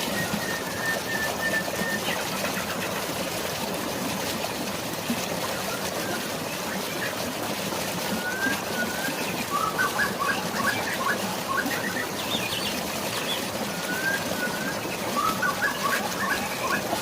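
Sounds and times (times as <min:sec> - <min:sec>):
rushing falling water: 0:00.0 - 0:17.0
bird high whistle: 0:08.2 - 0:12.7, 0:13.7 - 0:17.0.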